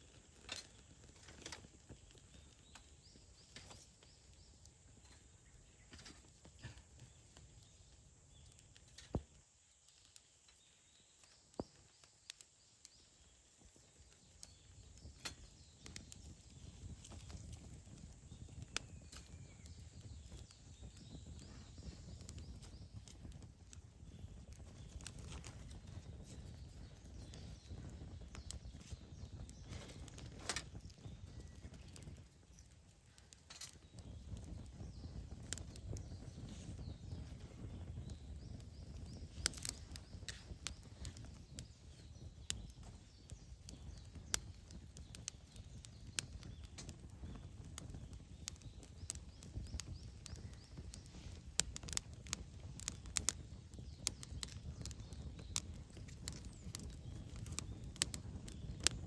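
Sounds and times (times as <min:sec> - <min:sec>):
faint clicks and knocks: 0:24.5 - 0:37.5, 0:42.4 - 0:59.0.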